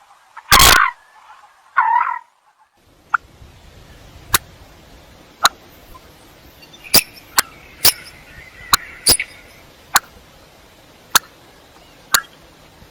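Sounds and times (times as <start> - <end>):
faint steady hiss: 0.0 - 12.9
coot calling: 0.4 - 3.2, 5.8 - 10.1.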